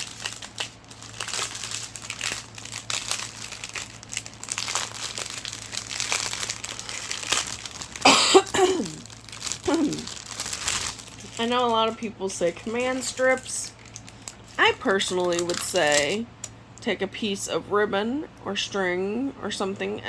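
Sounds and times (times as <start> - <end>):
plastic packaging crinkling: 0.0 - 16.5
voice: 9.7 - 10.1, 11.2 - 13.8, 14.6 - 20.0.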